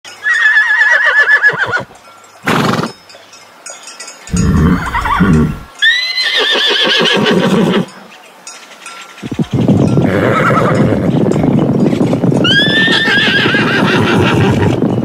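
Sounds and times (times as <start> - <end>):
horse whinnying: 0.2 - 1.9, 4.3 - 7.9, 10.0 - 11.1, 12.4 - 14.8.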